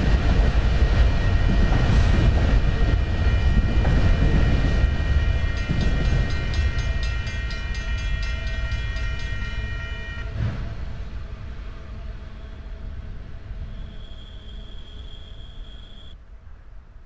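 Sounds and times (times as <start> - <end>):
train rumble: 0.0 - 17.0
high ringing of several tones: 4.6 - 10.3.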